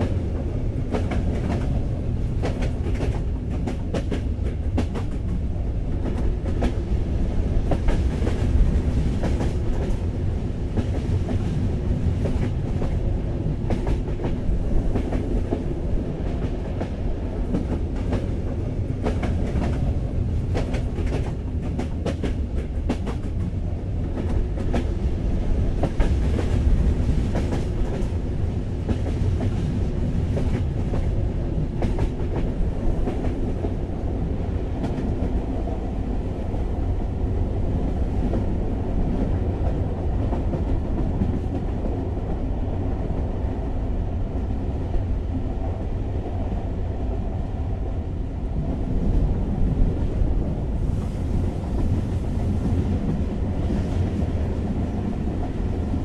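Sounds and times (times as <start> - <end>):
moving train rumble: 0.0 - 56.0.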